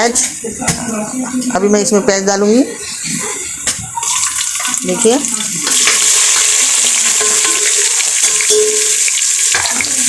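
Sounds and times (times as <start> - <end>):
onions sizzling in oil: 2.8 - 10.0.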